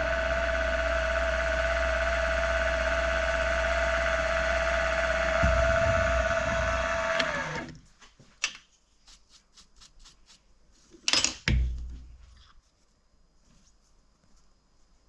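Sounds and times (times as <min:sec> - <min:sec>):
milling machine whining: 0:00.0 - 0:07.8
sharp knocks: 0:05.4 - 0:07.7.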